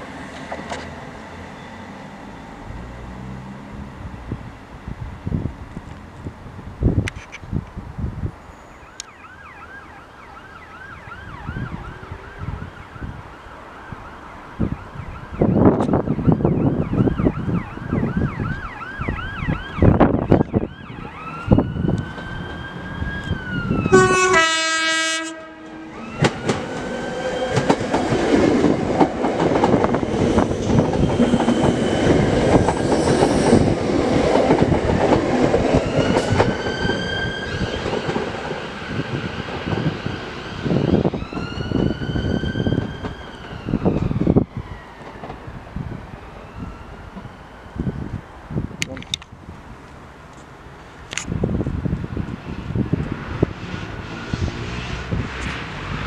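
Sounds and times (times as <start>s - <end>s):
train rumbling past: 0.0s - 7.1s, 19.5s - 48.7s, 50.0s - 56.0s
train horn blast: 23.9s - 26.0s
train wheels clattering on rails: 26.1s - 40.2s.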